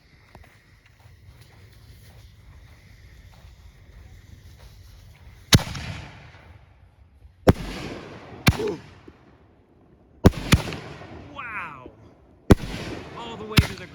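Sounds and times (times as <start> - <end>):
rumbling echo: 7.5 - 13.9.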